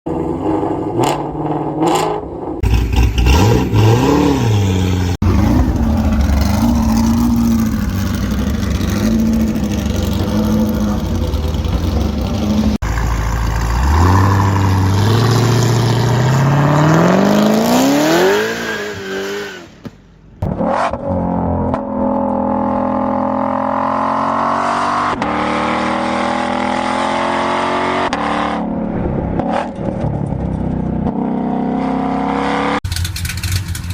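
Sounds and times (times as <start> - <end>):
engine revving: 0.1 - 19.8, 20.4 - 33.9
engine accelerating hard: 2.6 - 19.4
engine throttle blips: 4.4 - 16.2
engine idling roughly: 32.9 - 33.9.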